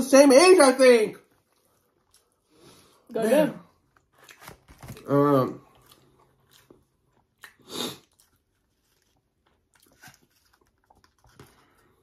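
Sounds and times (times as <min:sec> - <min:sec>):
quiet chewing with clicks: 0:01.4 - 0:02.7, 0:05.6 - 0:12.0.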